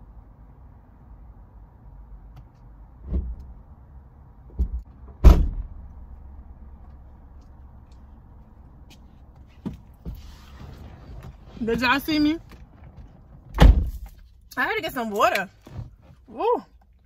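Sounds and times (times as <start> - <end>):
door being shut: 4.6 - 5.8, 13.5 - 14.0.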